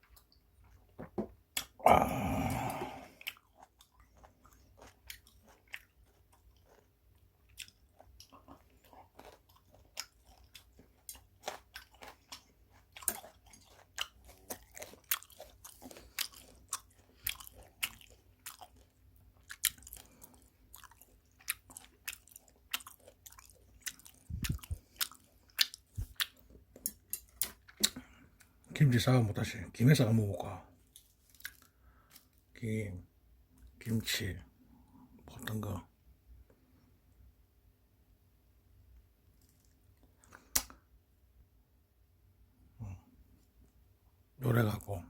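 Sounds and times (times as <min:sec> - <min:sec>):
person chewing and crunching food: 0:00.0 - 0:28.9, 0:30.7 - 0:32.5, 0:38.8 - 0:41.0.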